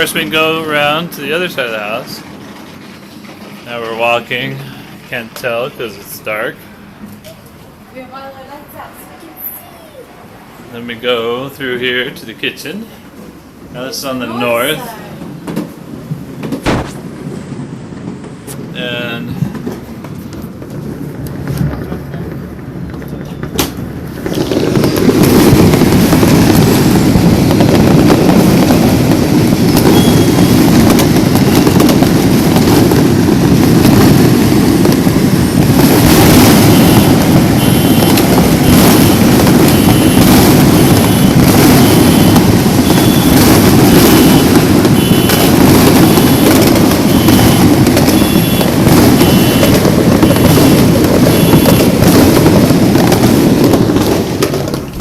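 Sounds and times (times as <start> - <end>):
firecrackers and fireworks banging: 0.0 - 55.0
short high beeping tone: 29.9 - 30.6, 36.8 - 43.4, 46.1 - 52.0.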